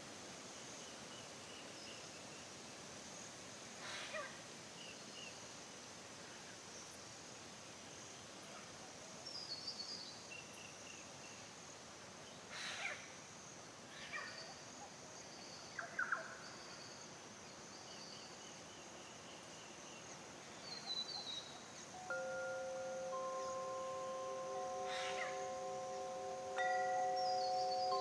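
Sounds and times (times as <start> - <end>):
steady high hiss: 0.0 - 14.1, 16.4 - 28.0
birds calling and singing: 20.7 - 28.0
wind chimes ringing: 22.0 - 28.0.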